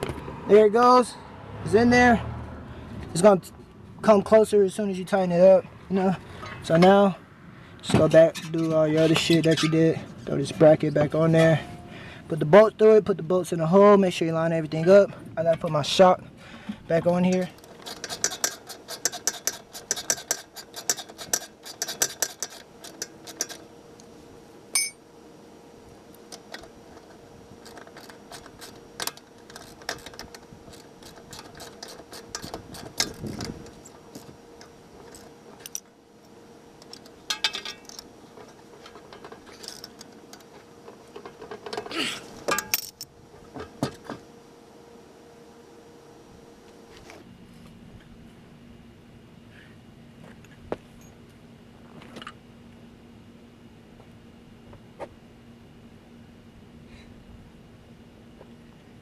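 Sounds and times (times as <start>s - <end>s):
metal parts clinking: 36.8s - 40.5s, 41.2s - 43.1s.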